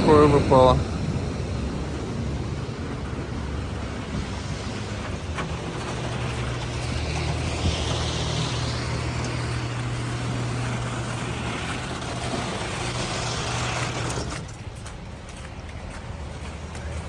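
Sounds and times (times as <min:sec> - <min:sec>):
street noise: 0:00.0 - 0:17.0
vehicle engine humming: 0:00.0 - 0:17.0.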